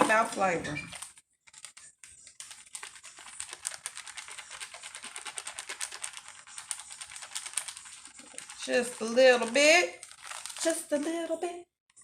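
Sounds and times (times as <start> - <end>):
seasoning shaker rattling: 1.8 - 11.2.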